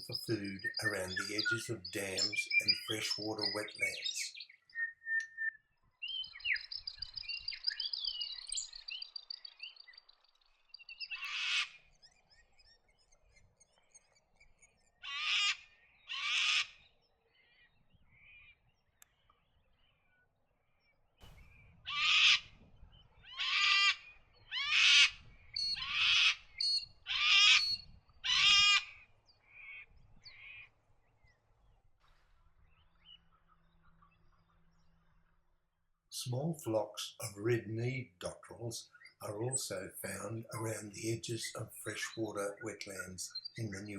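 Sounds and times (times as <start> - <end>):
loud harsh bird calls: 0.0 - 4.9, 11.0 - 11.8, 15.0 - 17.0, 21.2 - 22.6, 23.2 - 30.7, 36.2 - 43.9
birds twittering: 0.0 - 43.9.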